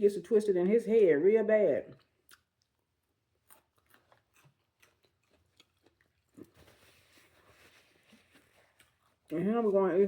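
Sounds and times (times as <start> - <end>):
person chewing food: 1.8 - 9.4.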